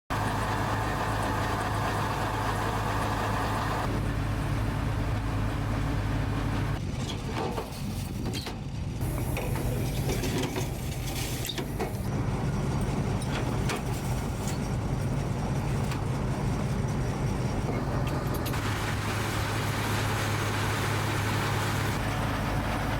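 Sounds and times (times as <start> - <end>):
helicopter engines and rotors humming: 0.1 - 6.8, 11.5 - 22.9.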